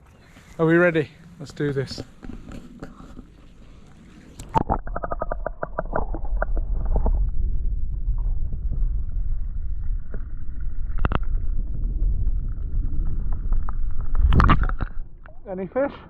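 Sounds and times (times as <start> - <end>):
low underwater rumble: 0.0 - 15.5
underwater clicks: 1.9 - 7.4, 9.8 - 11.7, 12.5 - 15.4
underwater bubbling: 2.1 - 15.5.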